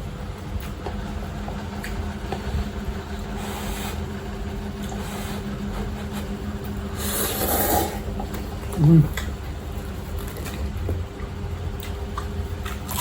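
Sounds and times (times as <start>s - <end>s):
steady low hum: 0.0s - 13.0s
small eating clicks: 8.2s - 13.0s.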